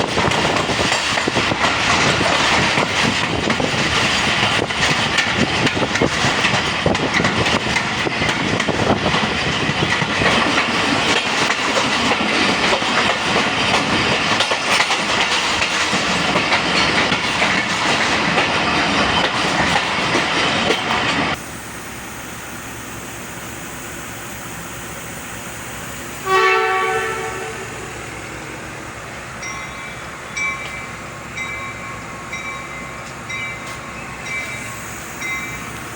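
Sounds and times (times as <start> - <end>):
train carriages rumbling on rails: 0.0 - 35.9
locomotive horn blast: 26.2 - 28.2.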